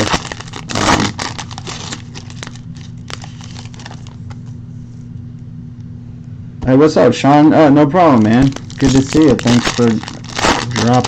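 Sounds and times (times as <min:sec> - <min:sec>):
rustle of card packs: 0:00.0 - 0:04.4, 0:08.2 - 0:11.0
wrappers clicking and crinkling: 0:00.0 - 0:04.4, 0:08.2 - 0:11.0
steady low hum: 0:00.0 - 0:11.0.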